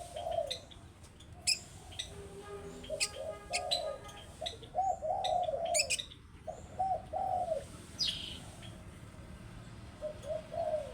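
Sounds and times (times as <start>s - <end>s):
dove cooing: 0.0s - 0.7s, 4.7s - 7.7s, 10.0s - 10.9s.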